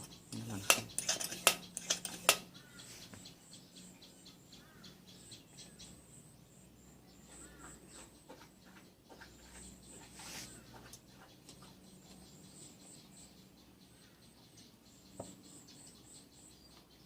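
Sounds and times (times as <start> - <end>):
high chirping of insects and birds: 0.0 - 17.0
sharp click: 0.6 - 2.5.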